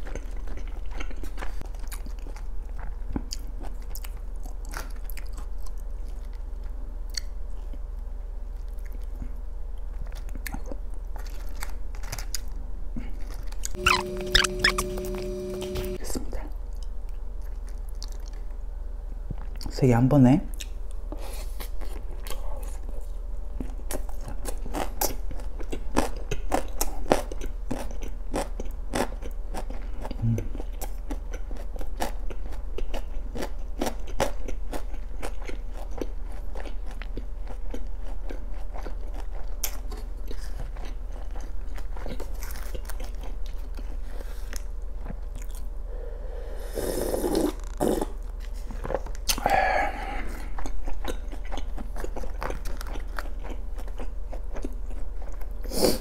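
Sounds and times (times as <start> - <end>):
wet chewing clicks and crunches: 0.0 - 7.8, 8.6 - 12.6, 13.2 - 14.9, 23.6 - 43.9, 44.5 - 45.7, 50.5 - 55.6.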